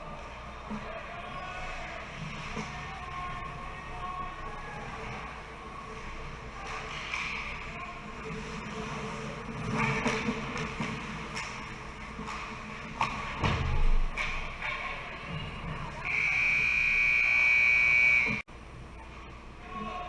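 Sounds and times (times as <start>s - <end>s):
ice rink background: 0.0s - 20.0s
hockey sticks and puck clacking: 6.6s - 7.7s, 9.6s - 15.0s.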